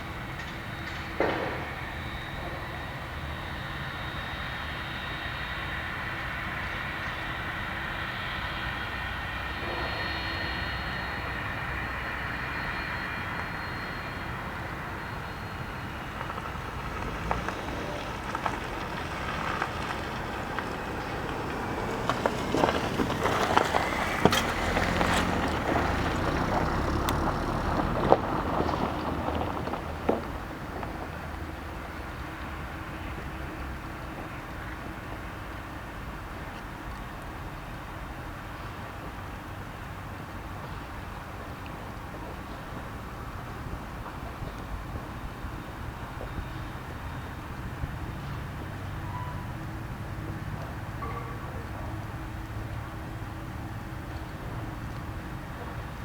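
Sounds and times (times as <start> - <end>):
jet engines whining: 0.0 - 28.8.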